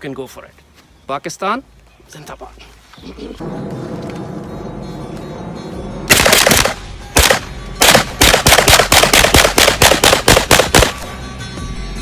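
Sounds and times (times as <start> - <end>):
rapid pistol fire: 6.1 - 11.0.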